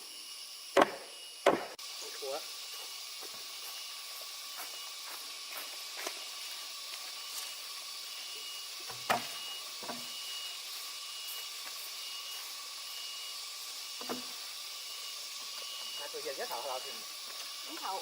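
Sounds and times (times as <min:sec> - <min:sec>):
steady high hiss: 0:00.0 - 0:18.0.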